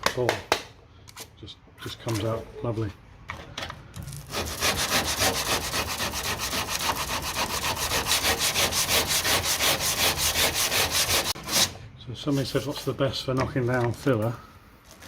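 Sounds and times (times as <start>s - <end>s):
hand sanding rasping strokes: 4.3s - 13.1s.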